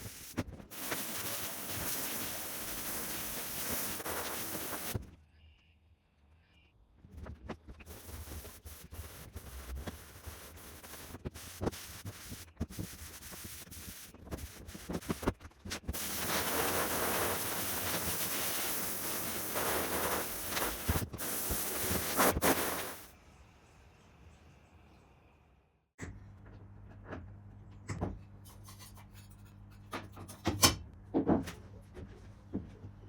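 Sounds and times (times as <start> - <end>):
garden hose spraying: 0.0 - 5.0, 7.9 - 15.3, 15.9 - 23.1.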